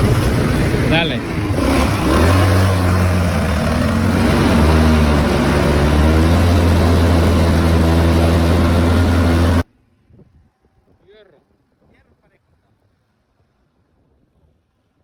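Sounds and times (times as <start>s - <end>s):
atv engine running: 0.0s - 9.6s.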